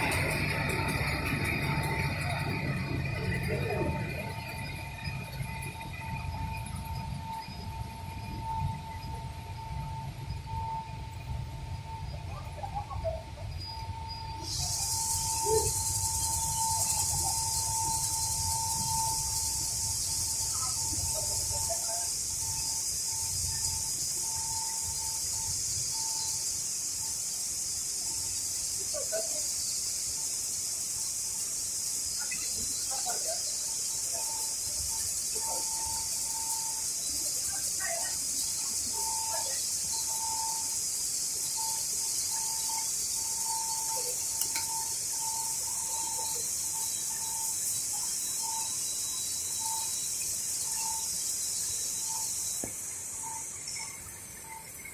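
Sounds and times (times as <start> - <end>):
machine high hiss: 13.4 - 54.9.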